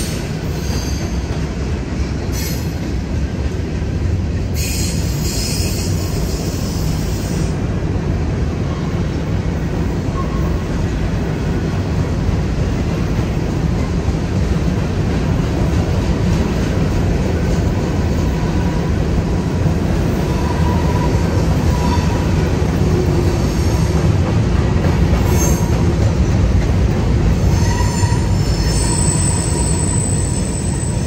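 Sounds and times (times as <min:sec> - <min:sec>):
freight cars rumbling on rail: 0:00.0 - 0:31.0
wheel squeal: 0:27.5 - 0:31.0.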